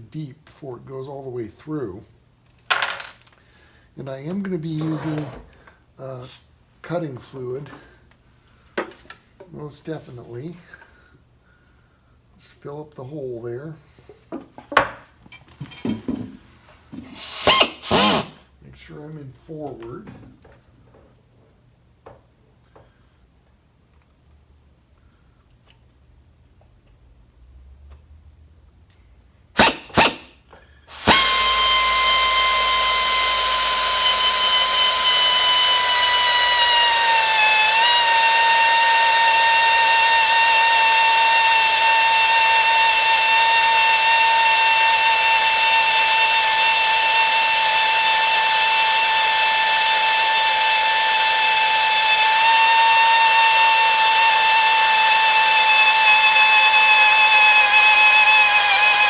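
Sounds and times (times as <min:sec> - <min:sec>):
power drill whining: 0:17.0 - 0:18.4, 0:29.6 - 0:30.3, 0:30.9 - 0:59.0.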